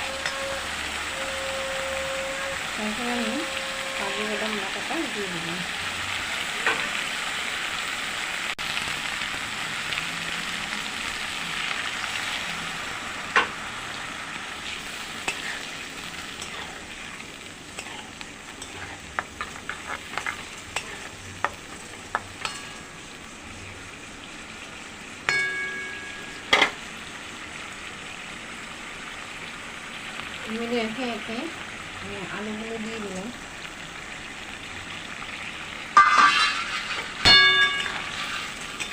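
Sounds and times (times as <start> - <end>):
spatula scraping a pan: 0.0 - 5.1, 14.6 - 23.0, 36.0 - 38.9
masala sizzling in a pan: 0.0 - 38.9
metal utensil clanking: 15.2 - 23.0, 25.3 - 26.8, 36.0 - 38.9.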